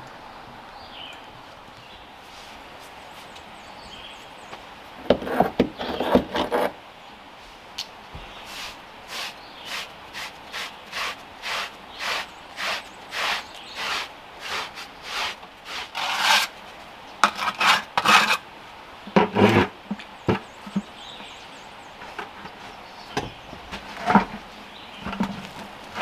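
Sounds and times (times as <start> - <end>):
hand scraping strokes: 8.4 - 16.6, 17.2 - 18.4.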